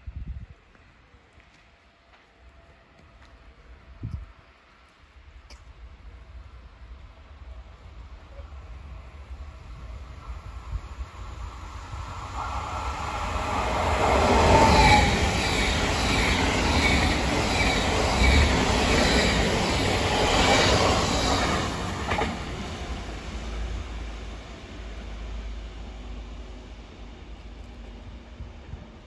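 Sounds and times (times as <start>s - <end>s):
train rushing past: 5.8s - 29.0s.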